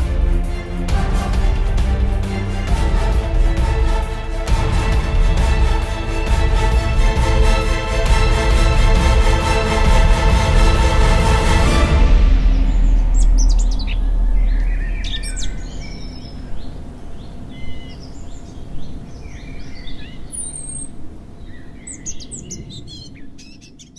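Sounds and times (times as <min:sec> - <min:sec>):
deep boom: 0:00.0 - 0:15.8
birds chirping and whistling: 0:12.2 - 0:23.9.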